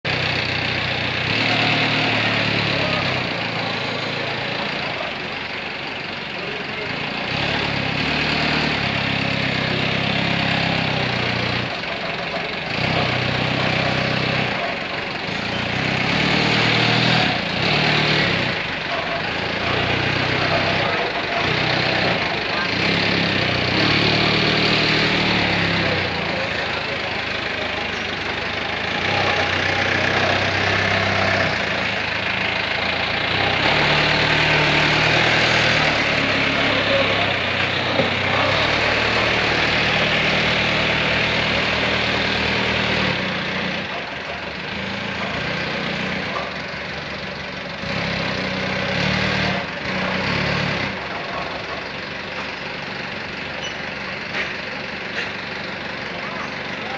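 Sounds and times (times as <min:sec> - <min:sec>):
concrete mixer engine hum: 0:00.0 - 0:56.9.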